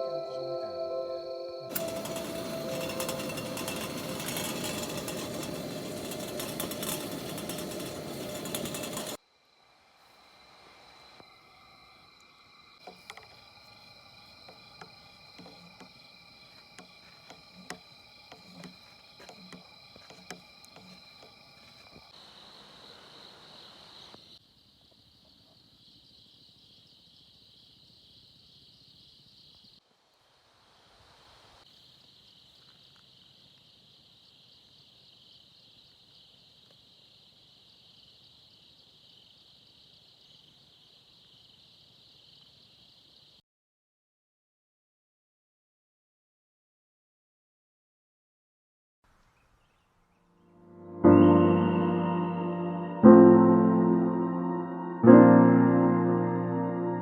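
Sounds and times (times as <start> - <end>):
night insects trilling: 1.7 - 43.4.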